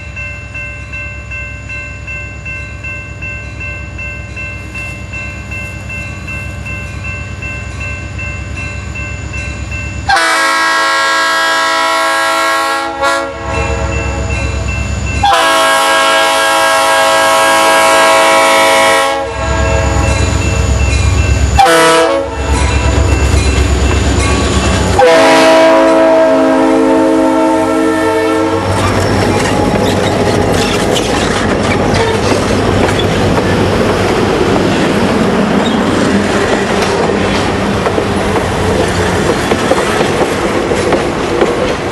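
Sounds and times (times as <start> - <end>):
locomotive air horn: 10.1 - 14.2, 15.2 - 20.1, 21.6 - 22.6, 24.8 - 28.8
train wheels clattering: 28.6 - 41.9.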